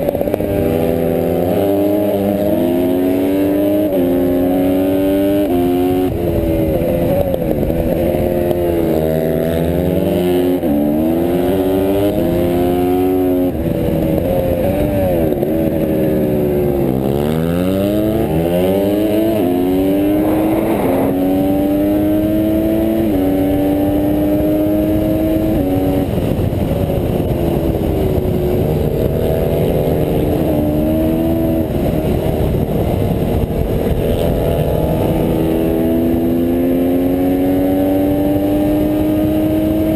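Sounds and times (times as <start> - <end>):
dirt bike engine revving: 16.8 - 26.0.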